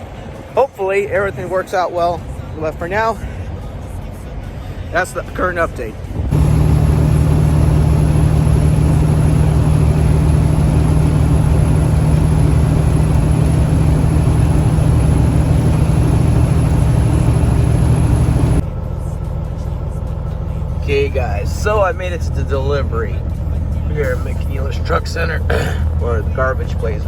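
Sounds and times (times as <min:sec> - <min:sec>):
high-pitched whine: 0:06.3 - 0:18.6
diesel engine running: 0:06.3 - 0:27.0.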